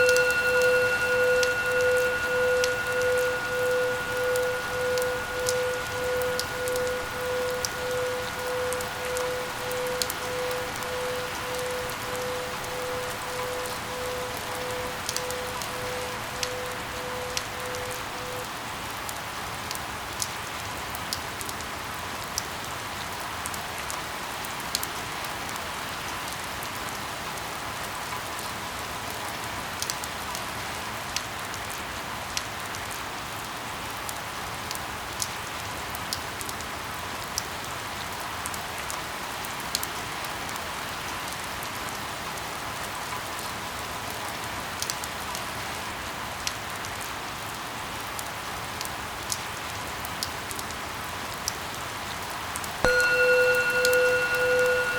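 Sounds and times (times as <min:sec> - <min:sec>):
raindrops ticking: 0:00.0 - 0:18.5
steady rain hiss: 0:00.0 - 0:54.9.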